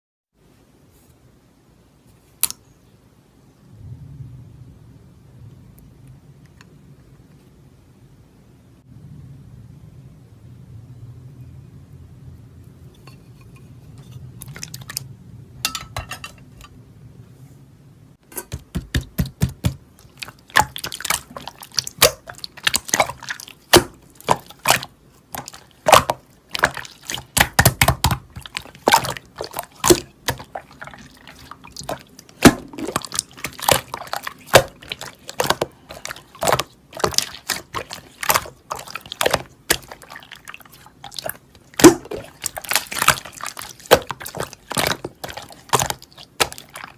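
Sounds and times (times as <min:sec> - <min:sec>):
slime squeezed by hand: 0:20.0 - 0:46.9.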